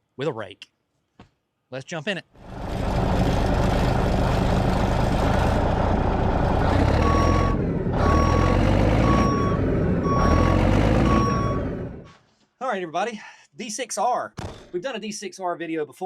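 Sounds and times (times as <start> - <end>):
diesel engine under load: 2.4 - 12.1
reversing alarm beeping: 6.8 - 12.0.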